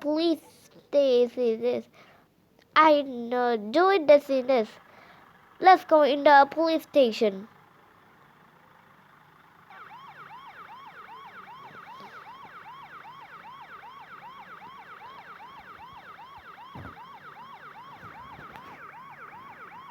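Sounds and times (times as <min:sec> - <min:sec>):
police siren yelping: 0:09.2 - 0:19.9.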